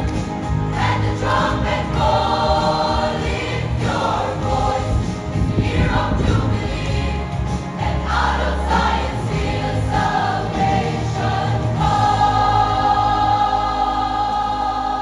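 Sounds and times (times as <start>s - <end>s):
choir singing gospel: 0.0s - 15.0s.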